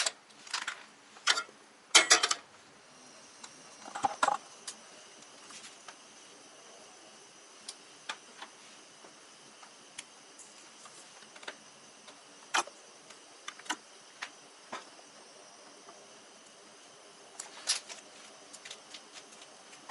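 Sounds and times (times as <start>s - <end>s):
small clicks and crackles: 17.4s - 19.9s.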